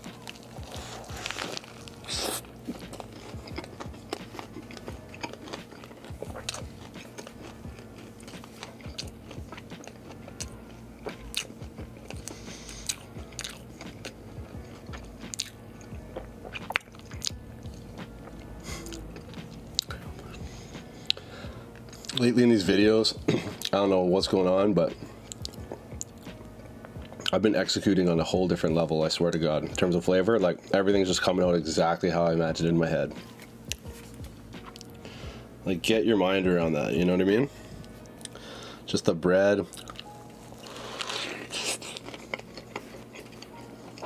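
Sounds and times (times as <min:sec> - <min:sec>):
crunching bite through toast: 0:00.0 - 0:14.2, 0:39.7 - 0:44.0
chewing with wet clicks: 0:02.6 - 0:20.0, 0:39.7 - 0:44.0.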